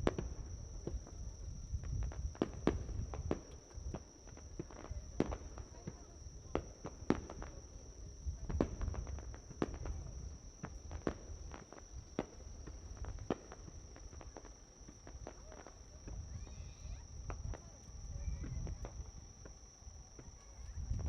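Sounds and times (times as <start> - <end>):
insects trilling: 9.2 - 21.0.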